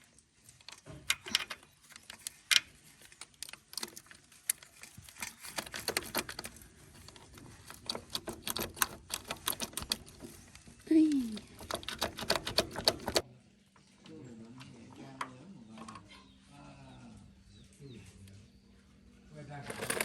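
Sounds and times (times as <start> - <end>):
metal parts and tools clinking: 0.5 - 13.2, 19.6 - 20.0.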